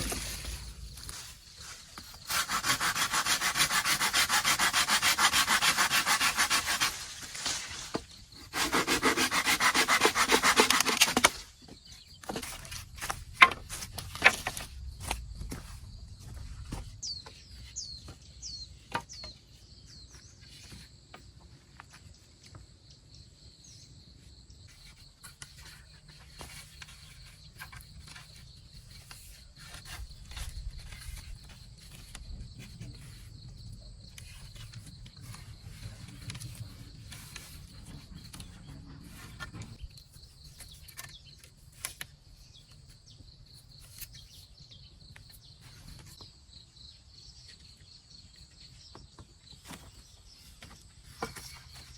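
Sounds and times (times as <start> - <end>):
wood being handled: 0.0 - 18.3, 48.9 - 51.9
insects droning: 0.0 - 51.9.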